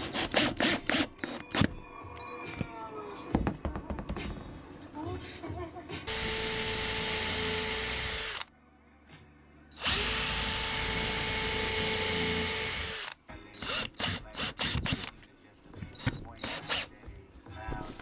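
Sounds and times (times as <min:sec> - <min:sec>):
power drill running: 0:00.0 - 0:01.7, 0:06.1 - 0:08.5, 0:09.8 - 0:15.1, 0:16.0 - 0:16.9.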